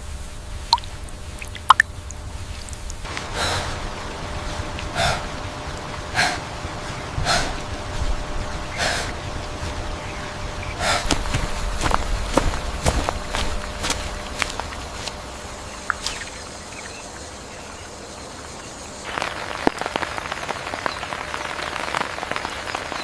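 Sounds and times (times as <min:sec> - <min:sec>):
loud breathy gasps: 0:04.9 - 0:05.4, 0:10.8 - 0:11.2.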